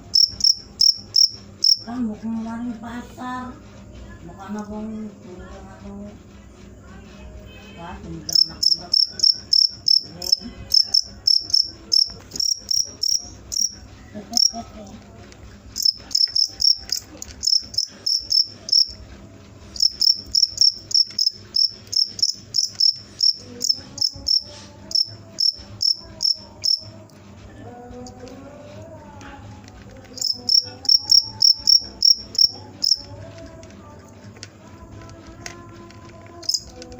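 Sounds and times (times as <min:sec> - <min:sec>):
cricket chirping: 0:00.0 - 0:02.5, 0:07.7 - 0:14.6, 0:15.8 - 0:19.0, 0:19.7 - 0:27.0, 0:30.1 - 0:33.4, 0:36.3 - 0:36.8.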